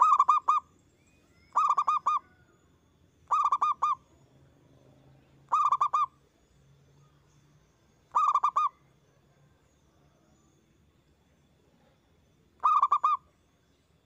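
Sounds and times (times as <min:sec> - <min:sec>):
dove cooing: 0:00.0 - 0:00.7, 0:01.5 - 0:02.4, 0:03.3 - 0:04.0, 0:05.5 - 0:06.1, 0:08.1 - 0:08.8, 0:12.6 - 0:13.2.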